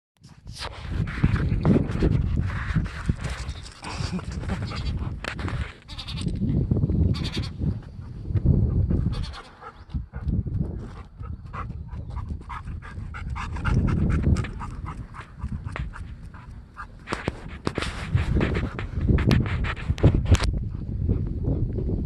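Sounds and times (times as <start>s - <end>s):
low rumble: 9.9s - 22.0s
quick clicks and scuffs: 14.3s - 20.5s.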